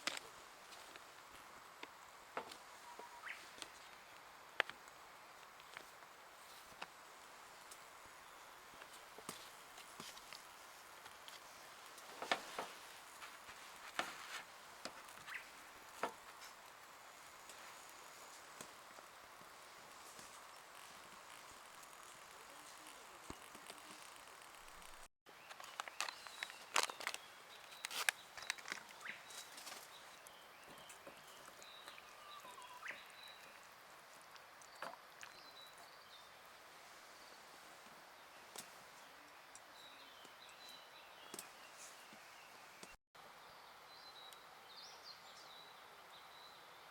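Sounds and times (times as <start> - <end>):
faint steady hiss: 0.0 - 46.9
faint bird calls: 2.8 - 3.6.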